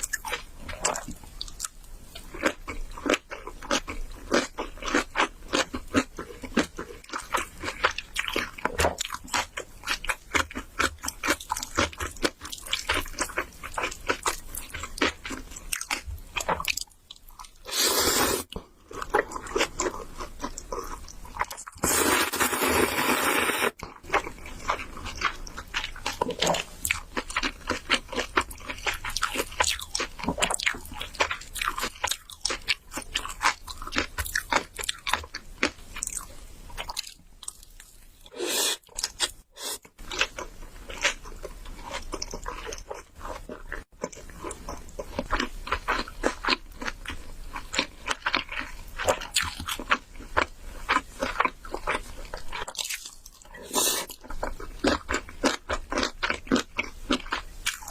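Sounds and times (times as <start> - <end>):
wet chewing and crunching: 0.0 - 22.7, 23.8 - 57.9
slurping noodles: 17.7 - 18.5, 21.8 - 23.8, 38.3 - 38.9.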